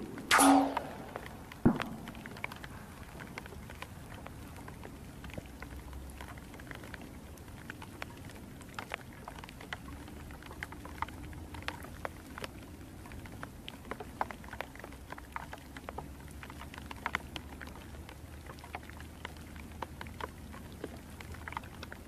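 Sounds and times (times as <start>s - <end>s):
raindrops ticking close by: 0.0s - 22.0s
steady rain hiss: 0.0s - 22.0s.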